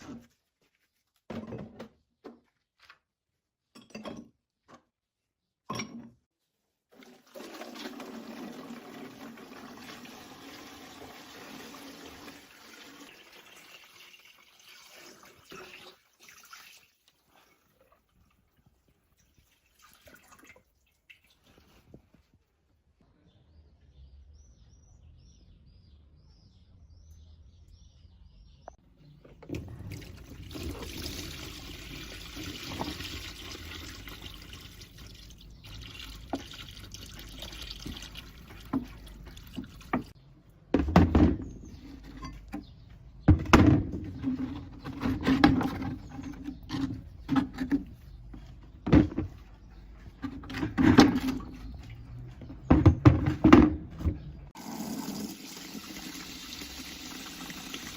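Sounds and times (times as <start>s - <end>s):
liquid pouring and splashing: 6.9s - 18.5s, 19.1s - 21.9s, 29.6s - 40.2s, 54.6s - 57.9s
sharp knocks and clunks: 39.9s - 49.5s, 50.1s - 54.4s.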